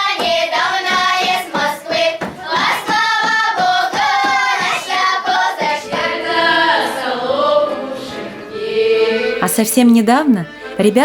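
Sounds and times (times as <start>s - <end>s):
rhythmic hand claps: 0.0s - 6.4s
children singing folk song: 0.0s - 10.9s.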